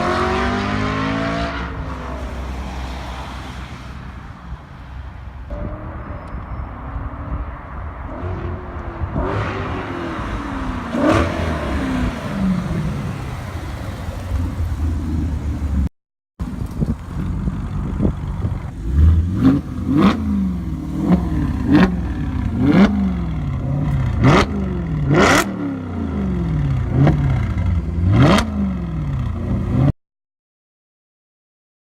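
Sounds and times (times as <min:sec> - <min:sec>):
car engine revving: 0:00.0 - 0:03.6, 0:08.0 - 0:15.9, 0:17.1 - 0:29.9.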